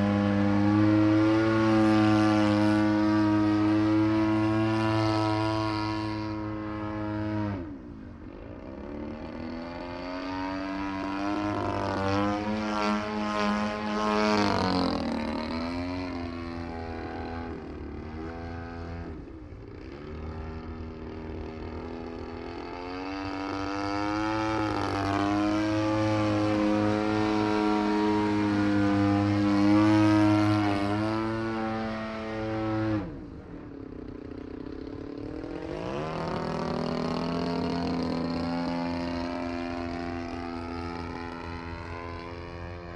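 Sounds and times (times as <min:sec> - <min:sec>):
model plane engine: 0:00.0 - 0:42.9.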